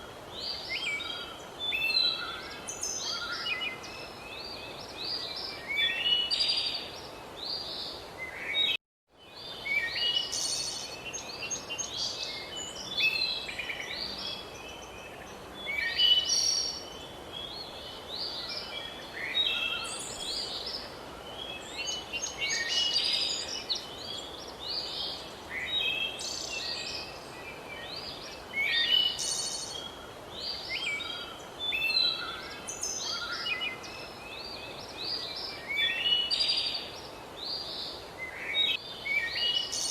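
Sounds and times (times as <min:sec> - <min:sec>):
birds singing and chirping: 0:09.4 - 0:39.9.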